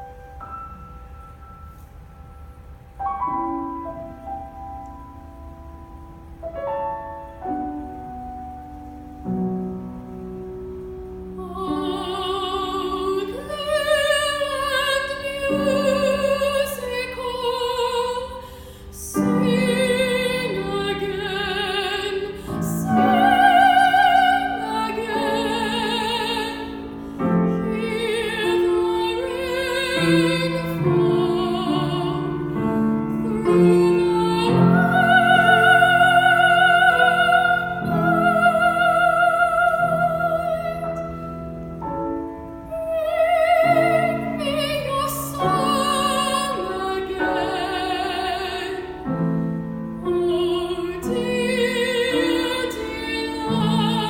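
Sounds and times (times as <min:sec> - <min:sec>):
piano accompaniment: 0:00.0 - 0:54.0
girl singing with vibrato: 0:11.4 - 0:41.0, 0:50.1 - 0:54.0.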